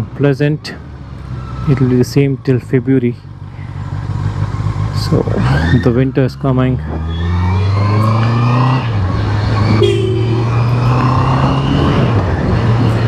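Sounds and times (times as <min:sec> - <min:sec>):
motorcycle engine running: 0:09.1 - 0:11.0.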